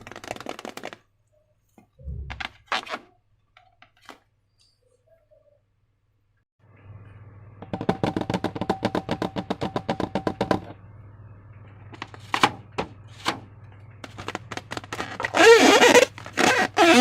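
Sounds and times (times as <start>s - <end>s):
low steady hum: 2.0s - 2.6s, 6.0s - 8.0s, 10.7s - 14.6s.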